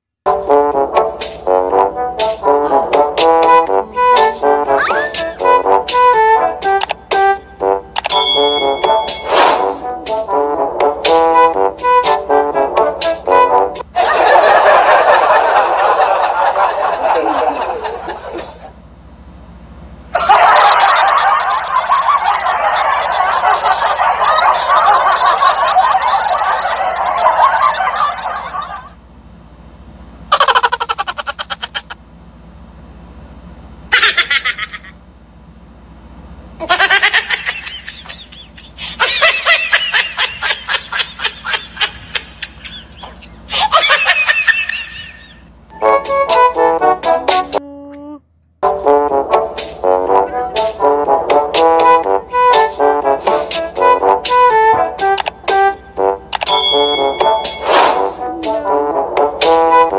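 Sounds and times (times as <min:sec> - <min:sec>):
person laughing: 0:04.7 - 0:05.4, 0:14.0 - 0:18.7, 0:30.3 - 0:32.0, 0:33.9 - 0:35.0, 0:36.6 - 0:45.5, 0:47.4 - 0:48.2
high-pitched giggling: 0:04.8 - 0:05.4, 0:30.3 - 0:32.0, 0:33.9 - 0:35.0, 0:36.6 - 0:45.5.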